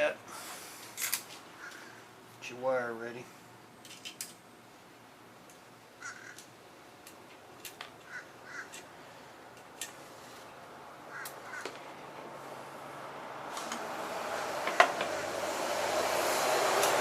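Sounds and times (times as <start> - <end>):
harsh bird calls: 6.0 - 6.4.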